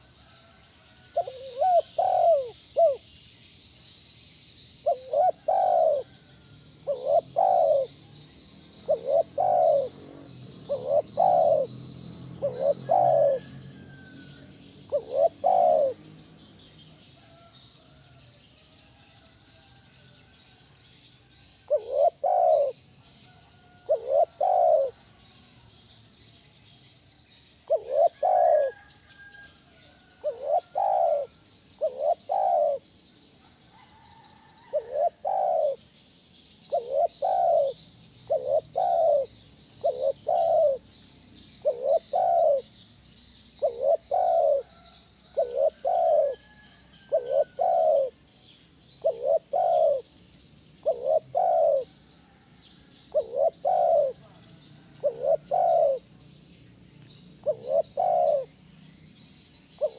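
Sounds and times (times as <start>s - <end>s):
dove cooing: 0.0s - 3.1s, 4.8s - 17.5s, 21.6s - 25.4s, 27.6s - 35.9s, 36.7s - 42.8s, 43.5s - 50.2s, 50.8s - 52.1s, 53.1s - 56.2s, 57.4s - 58.6s
faint small bird chirps: 19.0s - 59.9s.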